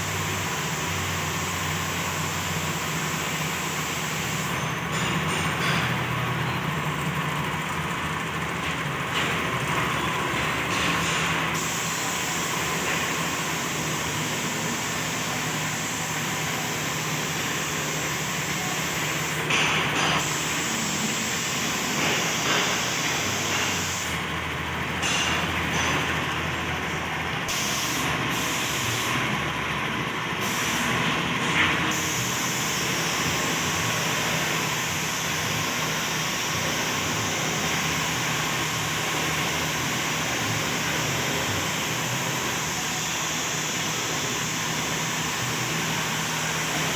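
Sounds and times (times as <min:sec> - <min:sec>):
machine humming: 0:11.4 - 0:24.8, 0:30.3 - 0:46.9.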